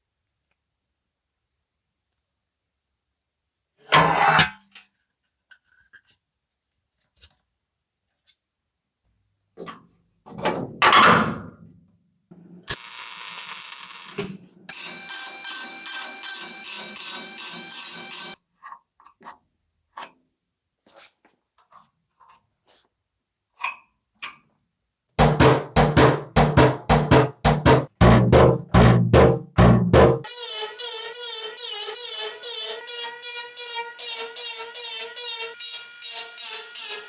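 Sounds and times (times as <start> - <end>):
machine pulsing: 12.7 - 18.4.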